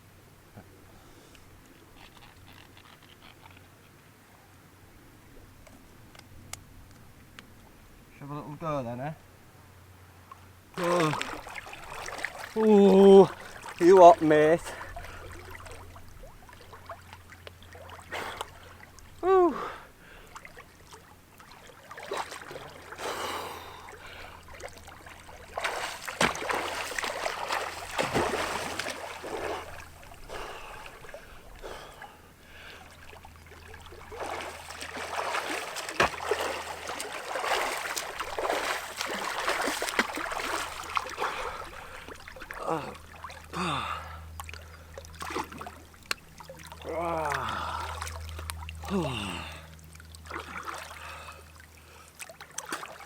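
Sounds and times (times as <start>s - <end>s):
water splashing and sloshing: 10.2s - 53.0s
person gasping breaths: 19.2s - 20.4s, 23.0s - 24.5s, 30.3s - 32.9s, 41.2s - 44.3s, 47.1s - 48.0s, 48.8s - 49.7s.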